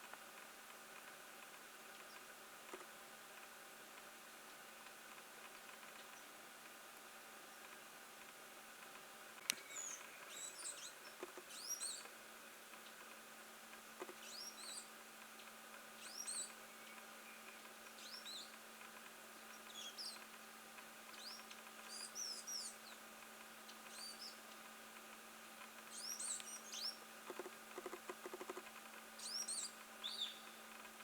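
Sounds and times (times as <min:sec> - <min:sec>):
small bird chirping: 0:09.5 - 0:12.1, 0:14.0 - 0:14.9, 0:16.0 - 0:18.6, 0:19.5 - 0:20.3, 0:21.1 - 0:23.0, 0:23.6 - 0:24.4, 0:25.9 - 0:28.6, 0:29.2 - 0:30.6.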